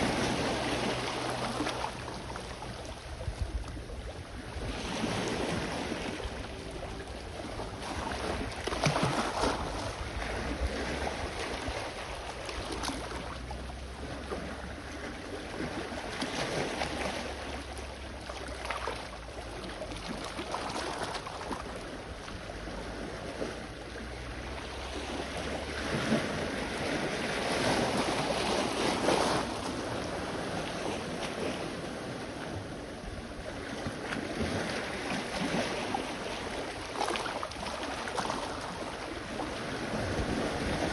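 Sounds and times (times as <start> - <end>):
wind on microphone: 0.0 - 13.4, 37.6 - 40.9
sea waves washing ashore: 0.0 - 40.9.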